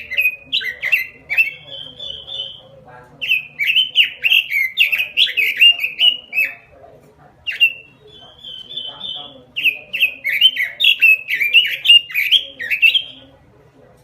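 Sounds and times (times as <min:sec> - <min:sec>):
bird singing whistled notes: 0:00.0 - 0:06.7, 0:07.5 - 0:13.3.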